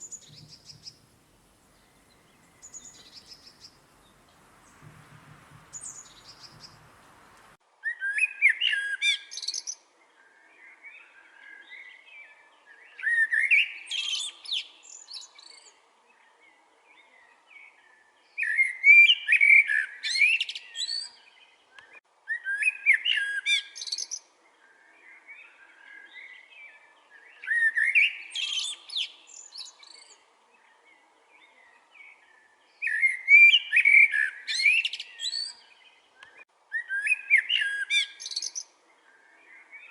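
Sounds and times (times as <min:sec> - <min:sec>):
soft bird chirping: 0:00.0 - 0:07.6
songbird singing warbling song: 0:00.0 - 0:39.9.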